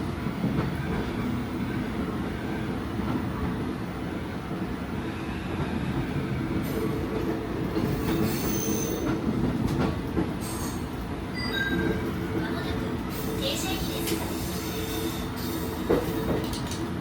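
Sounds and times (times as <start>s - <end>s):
railcar rumbling on rails: 0.0s - 17.0s
high-pitched wheel squeals: 8.2s - 9.1s.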